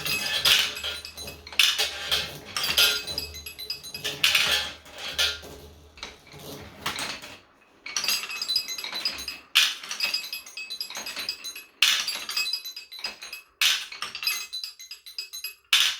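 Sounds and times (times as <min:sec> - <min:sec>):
bell-like music notes: 0:08.2 - 0:13.5, 0:14.2 - 0:15.7.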